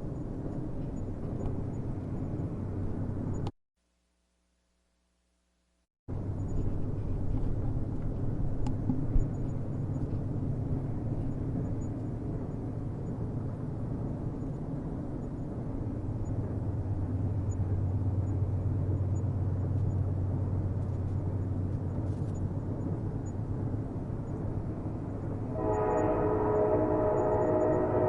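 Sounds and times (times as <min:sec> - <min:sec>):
distant train rumbling on rails: 0:06.1 - 0:28.0
train horn: 0:25.5 - 0:28.0.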